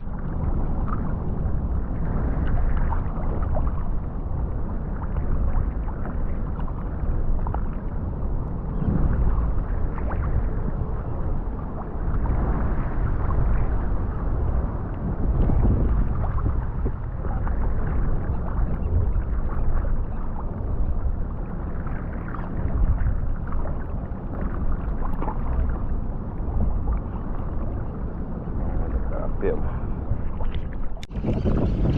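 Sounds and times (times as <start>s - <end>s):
water lapping against kayak: 0.0s - 31.9s
wind buffeting microphone: 0.0s - 31.9s
small splashes and ticks: 2.4s - 8.6s, 16.2s - 28.2s.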